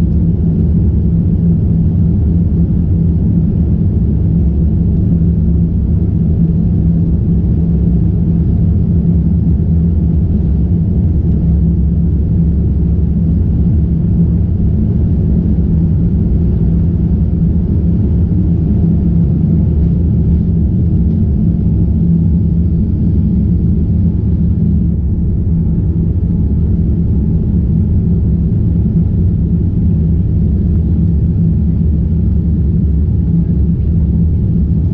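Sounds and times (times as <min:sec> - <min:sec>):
jet engines rumbling in cabin: 0:00.0 - 0:34.9.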